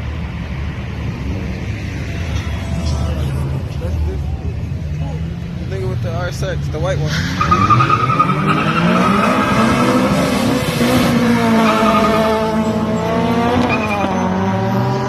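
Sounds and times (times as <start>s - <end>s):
tires squealing: 1.2s - 5.4s, 6.0s - 15.0s
car engine revving hard: 7.0s - 15.0s.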